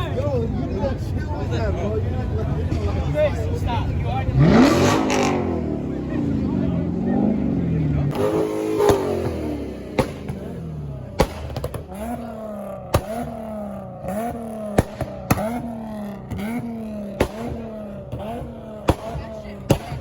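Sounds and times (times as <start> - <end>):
car engine revving: 0.0 - 20.0
sharp cracks: 8.1 - 20.0.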